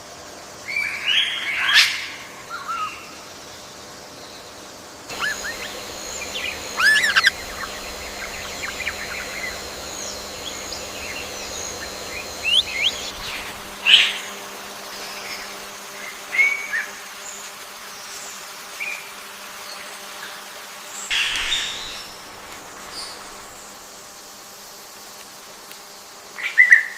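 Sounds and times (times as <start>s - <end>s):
high-pitched drone: 5.1s - 15.8s
wild birds chirping: 5.1s - 15.8s, 21.1s - 24.8s.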